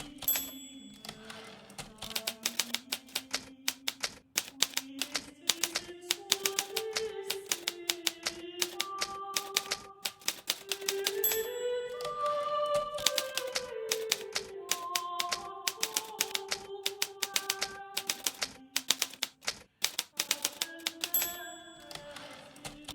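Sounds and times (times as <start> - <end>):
typewriter typing: 0.0 - 22.9.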